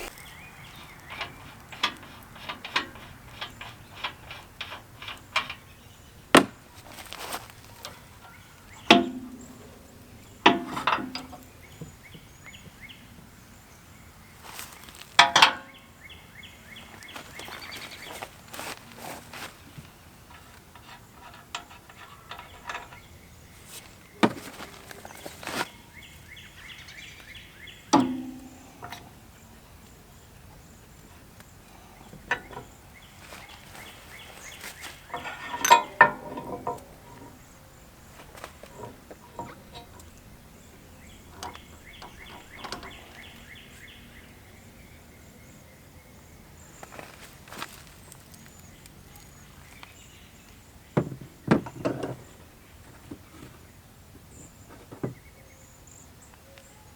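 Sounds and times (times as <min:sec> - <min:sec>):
metal clanks and knocks: 0:00.0 - 0:12.8, 0:14.4 - 0:15.8, 0:16.8 - 0:26.0, 0:27.2 - 0:29.2, 0:31.8 - 0:44.1, 0:51.0 - 0:53.6.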